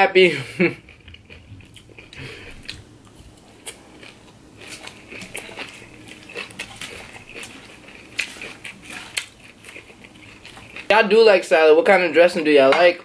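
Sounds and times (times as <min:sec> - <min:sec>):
crunchy chewing: 0:00.7 - 0:10.9.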